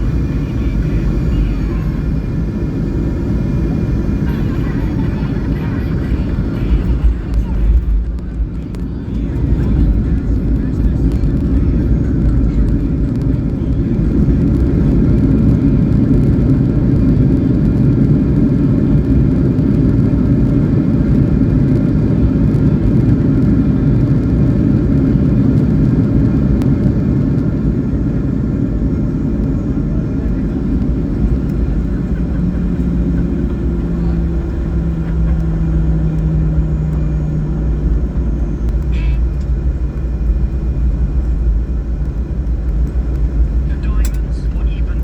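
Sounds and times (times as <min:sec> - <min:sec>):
aircraft engine and rolling rumble: 0:00.0 - 0:45.0
low humming tone: 0:00.0 - 0:45.0.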